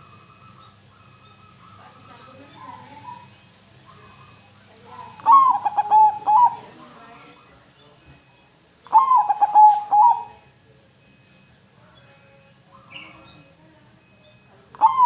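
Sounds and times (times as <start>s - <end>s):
dove cooing: 0.0s - 7.6s, 8.9s - 10.5s, 14.8s - 15.0s.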